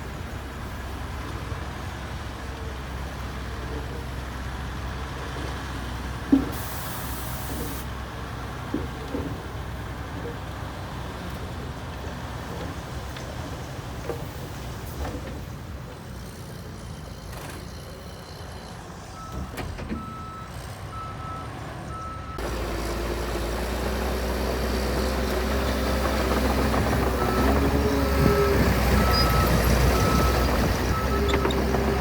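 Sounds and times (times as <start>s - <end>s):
diesel engine running: 22.0s - 32.0s
reversing alarm beeping: 27.2s - 32.0s.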